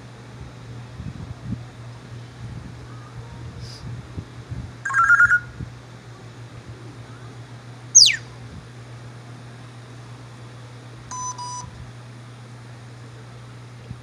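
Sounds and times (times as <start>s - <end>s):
parrot imitating telephone ring: 4.8s - 5.5s, 11.1s - 11.6s
parrot downward-sliding whistle: 4.9s - 5.5s, 8.0s - 8.3s.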